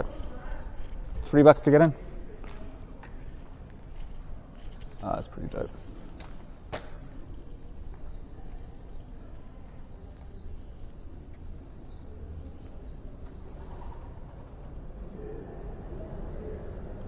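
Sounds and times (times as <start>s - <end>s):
outdoor background noise: 0.0s - 17.0s
small bird chirping: 4.0s - 14.0s.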